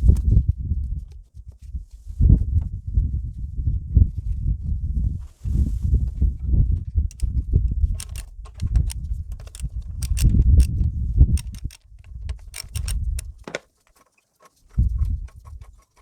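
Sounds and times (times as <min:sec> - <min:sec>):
metal tools clinking: 0:08.0 - 0:10.7, 0:11.4 - 0:14.2.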